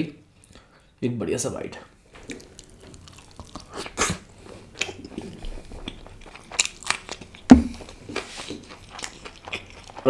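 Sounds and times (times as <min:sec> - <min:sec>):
close chewing with mouth clicks: 0:02.2 - 0:10.0.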